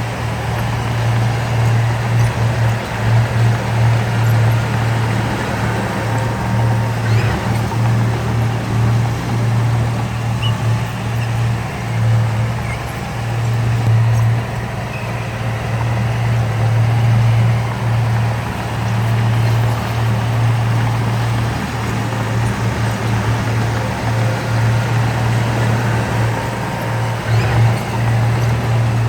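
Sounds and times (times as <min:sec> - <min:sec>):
heavy machinery diesel engine running: 0:00.0 - 0:29.0.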